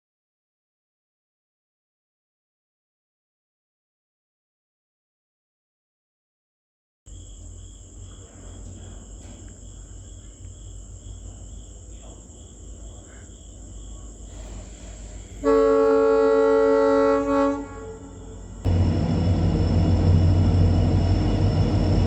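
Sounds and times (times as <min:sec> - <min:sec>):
diesel locomotive engine rumble: 0:14.0 - 0:22.0
locomotive air horn blast: 0:14.3 - 0:19.0.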